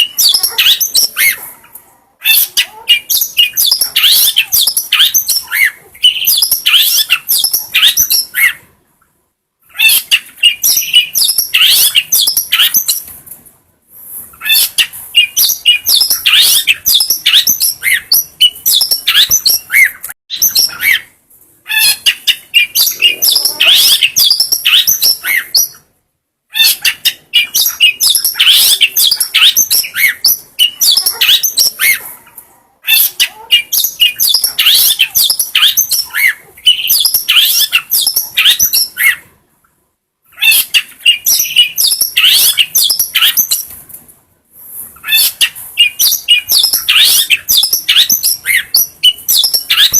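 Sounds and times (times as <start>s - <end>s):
shrike singing chattering song: 21.8s - 25.8s.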